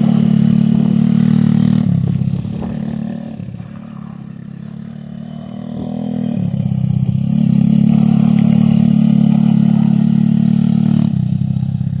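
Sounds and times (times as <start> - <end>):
pit bike engine running hard: 0.0 - 12.0.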